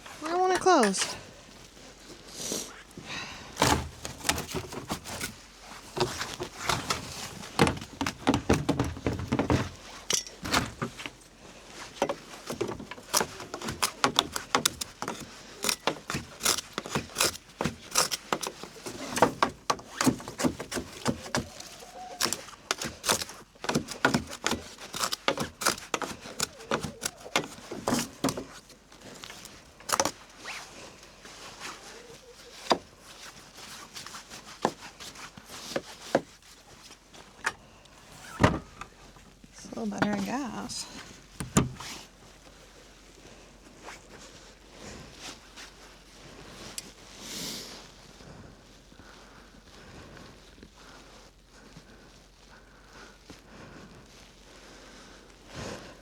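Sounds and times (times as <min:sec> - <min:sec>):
coop door knocking and scraping: 0:06.0 - 0:11.1.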